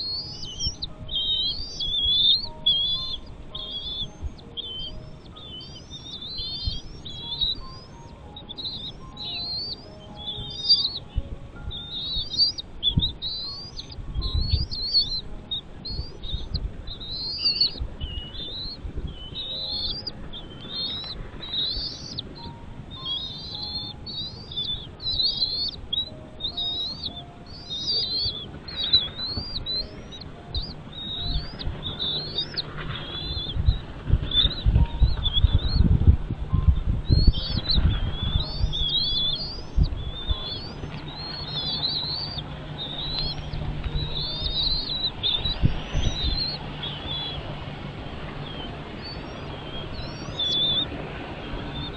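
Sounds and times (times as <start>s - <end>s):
birds chirping rapidly: 0.0s - 51.9s
faint background music: 0.0s - 51.9s
low rumbles: 0.0s - 51.9s.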